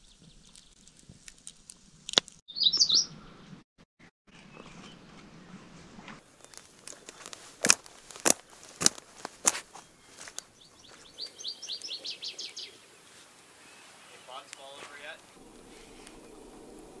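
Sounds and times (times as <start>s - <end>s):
songbird trilling: 2.5s - 3.5s, 6.2s - 16.8s.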